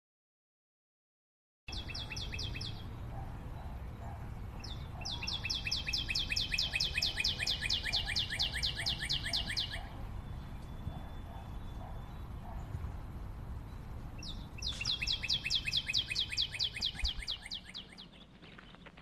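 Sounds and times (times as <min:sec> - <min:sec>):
bird singing high notes: 0:14.6 - 0:18.2.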